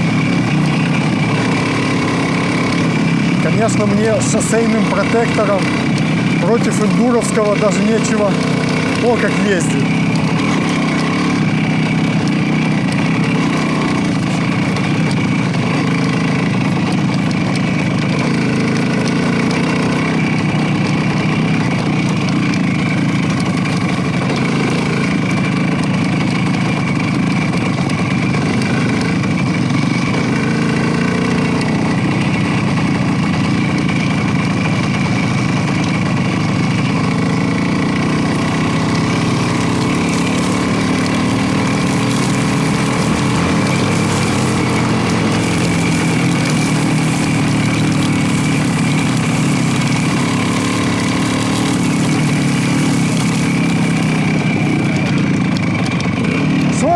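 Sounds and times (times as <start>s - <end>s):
motorcycle engine running steadily: 0.0s - 56.9s.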